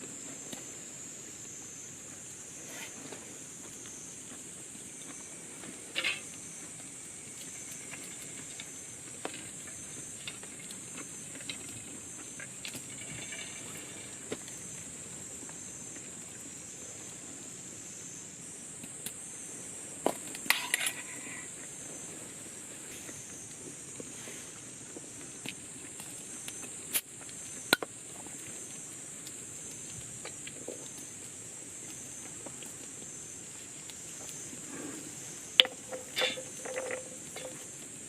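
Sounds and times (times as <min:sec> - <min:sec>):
steady high-pitched hiss: 0:00.0 - 0:38.0
metallic clinks of cookware: 0:35.6 - 0:37.6.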